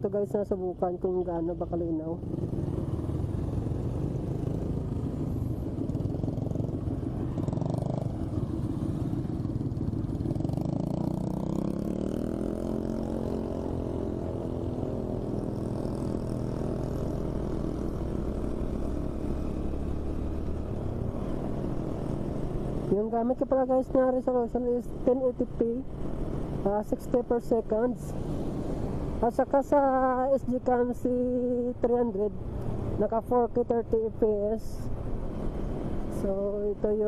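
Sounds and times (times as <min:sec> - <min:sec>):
wind and road noise: 0:00.0 - 0:37.0
motorcycle engine: 0:02.2 - 0:24.2.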